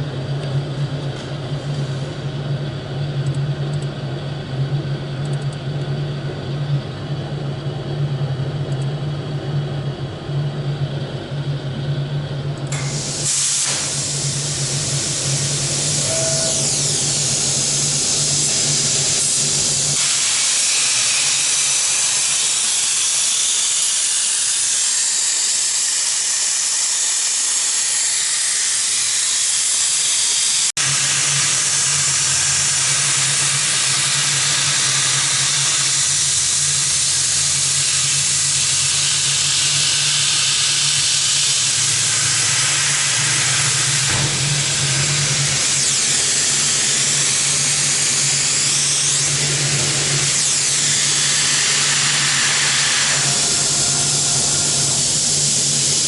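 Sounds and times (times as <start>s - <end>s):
hissing cutting noise: 12.7s - 38.4s, 40.8s - 56.0s.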